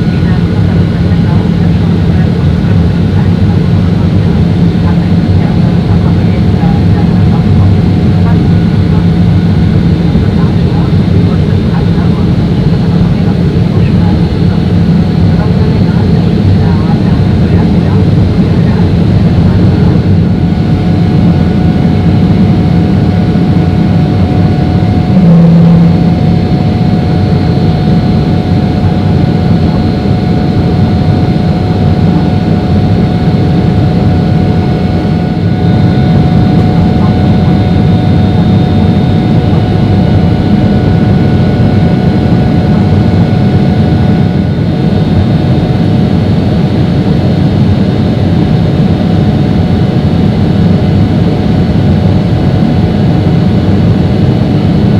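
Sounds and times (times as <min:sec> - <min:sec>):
short low hum: 0:12.3 - 0:46.3
faint whining tones: 0:13.4 - 0:45.1.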